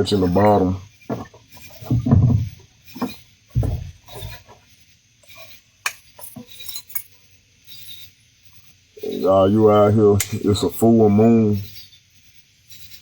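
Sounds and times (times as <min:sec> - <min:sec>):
kayak hull and paddle knocking: 0:00.0 - 0:04.7
insects chirping: 0:00.0 - 0:13.0.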